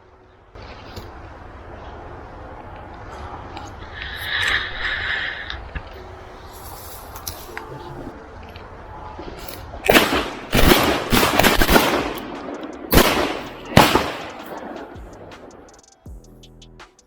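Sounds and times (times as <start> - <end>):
shotgun shots with echo: 9.8 - 15.7.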